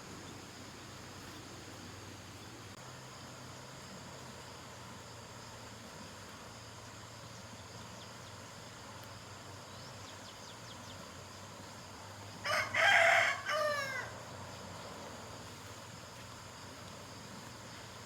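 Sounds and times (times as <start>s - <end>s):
faint hiss: 0.0s - 18.0s
rooster crowing: 12.4s - 14.2s.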